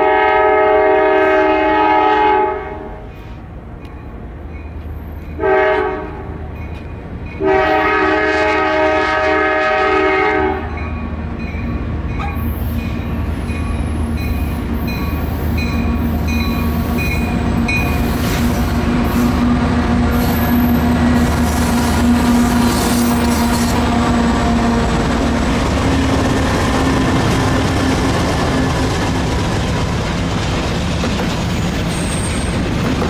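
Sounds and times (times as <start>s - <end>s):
locomotive air horn: 0.0s - 3.1s, 5.4s - 6.4s, 7.4s - 10.8s, 18.0s - 25.3s
diesel locomotive engine drone: 0.0s - 33.0s
rail and wheel noise: 0.0s - 33.0s.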